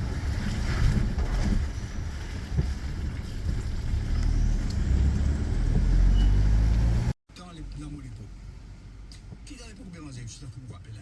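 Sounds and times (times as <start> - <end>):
car engine rumble: 0.0 - 11.0
road noise: 0.0 - 11.0.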